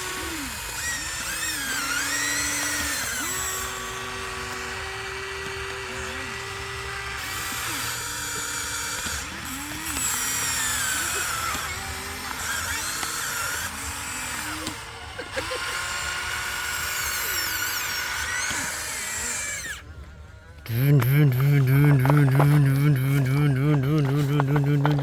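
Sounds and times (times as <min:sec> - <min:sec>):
small electric motors whining: 0:00.0 - 0:25.0.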